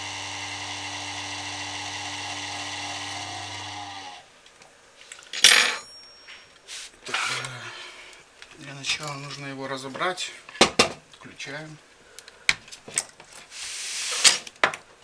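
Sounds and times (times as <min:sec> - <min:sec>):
power supply fan humming: 0:00.0 - 0:04.2.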